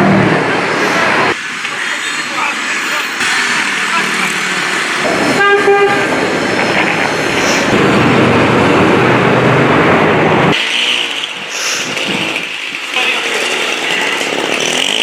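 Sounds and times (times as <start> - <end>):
rough engine noise: 0.0 - 15.0
street traffic: 0.0 - 15.0
vehicle horn honking: 5.4 - 6.1.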